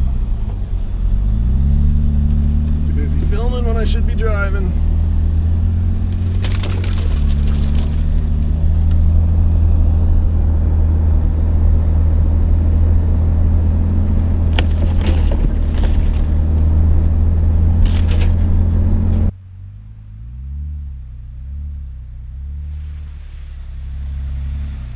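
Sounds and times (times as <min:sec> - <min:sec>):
vehicle engine and road noise: 0:00.0 - 0:24.9
sharp cracks and clatter: 0:05.6 - 0:09.2, 0:13.8 - 0:19.3.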